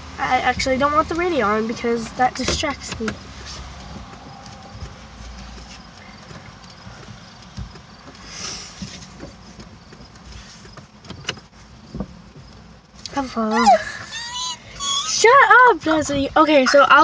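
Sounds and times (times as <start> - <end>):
van engine and road rumble: 0.0 - 17.0
faint irregular knocks: 2.3 - 13.0.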